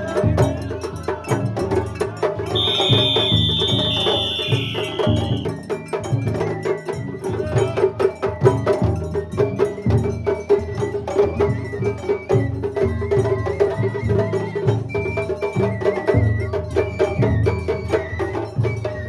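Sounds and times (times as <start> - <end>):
drums in fast rhythm: 0.0 - 19.0
high held notes: 2.6 - 5.5.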